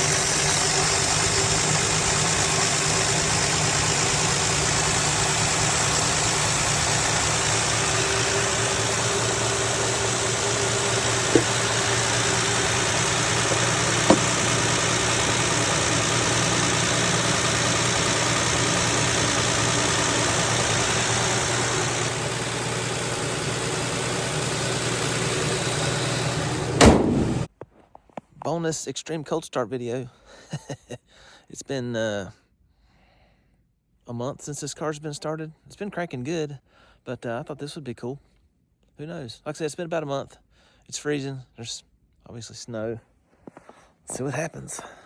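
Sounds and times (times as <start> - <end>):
car engine idling: 0.0 - 27.5
sharp engine burst: 0.0 - 27.5.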